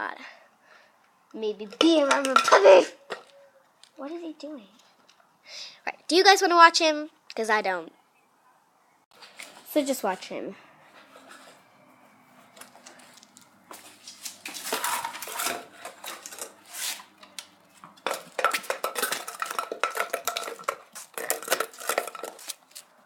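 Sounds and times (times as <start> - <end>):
metallic clinking and rattling: 14.4 - 17.0, 17.9 - 22.9.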